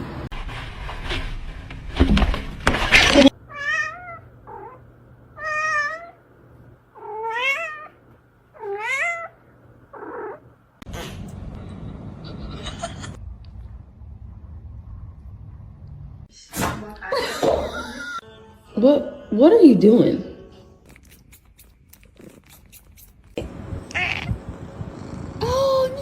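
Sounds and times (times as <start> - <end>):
cat meowing: 3.5 - 4.8, 5.4 - 6.2, 7.0 - 8.0, 23.9 - 24.4.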